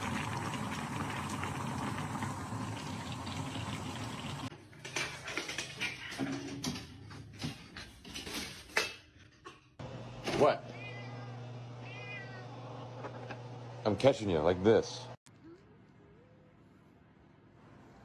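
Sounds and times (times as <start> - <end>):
water running from tap: 0.0 - 4.5.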